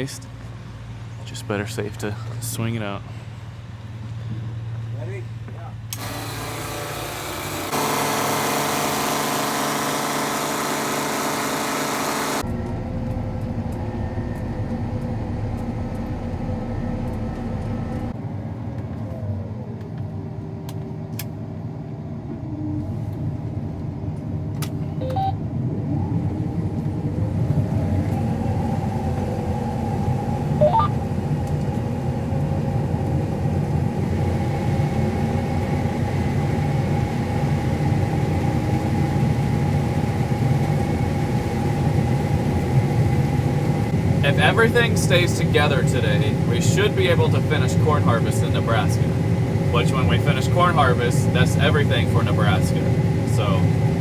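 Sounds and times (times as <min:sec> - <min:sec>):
combine harvester engine running: 0:05.9 - 0:18.2, 0:27.6 - 0:54.0.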